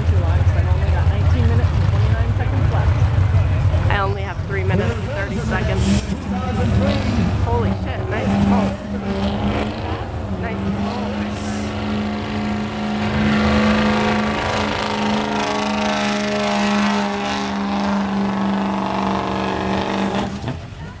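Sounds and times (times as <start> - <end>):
diesel truck engine under load: 0.0 - 21.0.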